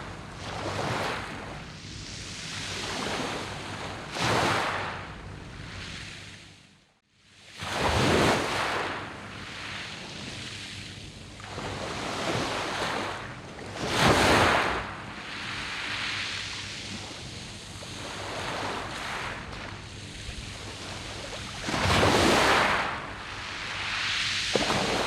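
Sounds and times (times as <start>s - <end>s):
waves washing on pebbles: 7.6s - 10.8s, 11.5s - 25.0s.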